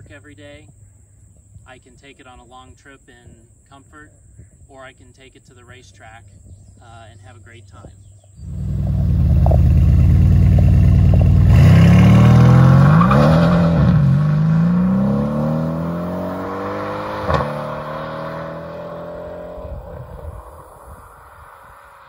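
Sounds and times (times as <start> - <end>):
exhaust crack: 8.4 - 21.9
car engine accelerating: 8.4 - 22.0.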